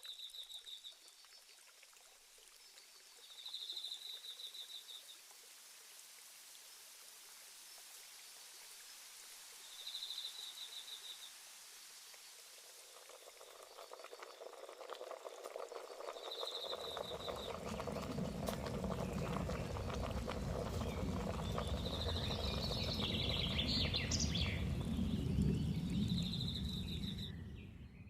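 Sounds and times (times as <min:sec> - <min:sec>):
crickets chirping: 0:09.7 - 0:27.8
bubbling water: 0:12.4 - 0:27.8.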